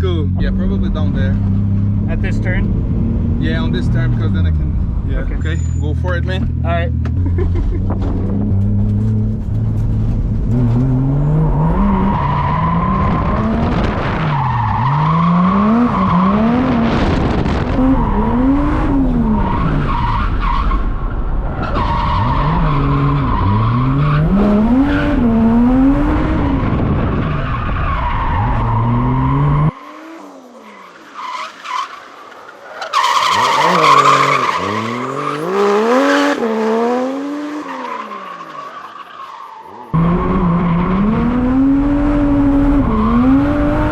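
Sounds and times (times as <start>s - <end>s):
car engine revving: 0.0s - 43.9s
tires squealing: 3.6s - 43.9s.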